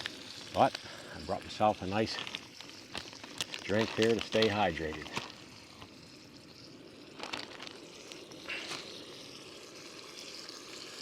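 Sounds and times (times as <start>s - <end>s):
sausage sizzling in a skillet: 0.0s - 11.0s.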